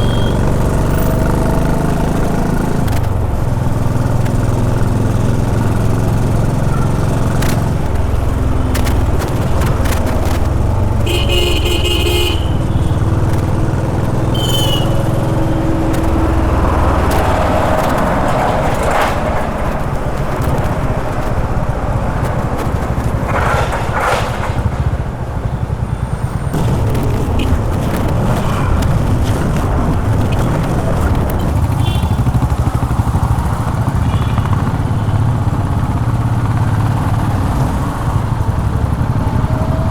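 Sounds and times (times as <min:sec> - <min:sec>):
vehicle horn: 0:00.0 - 0:01.3, 0:11.0 - 0:18.3, 0:31.7 - 0:32.4
motorcycle engine running: 0:00.0 - 0:39.9.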